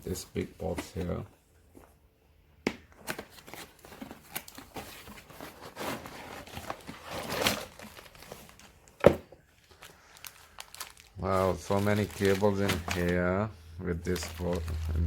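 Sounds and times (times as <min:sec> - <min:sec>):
packaging rustling and crinkling: 0:03.0 - 0:15.0.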